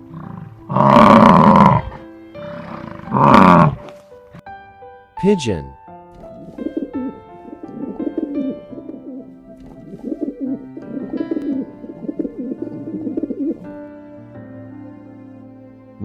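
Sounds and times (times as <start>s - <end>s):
soft background music: 0.0s - 16.0s
pigeon cooing: 6.3s - 13.7s.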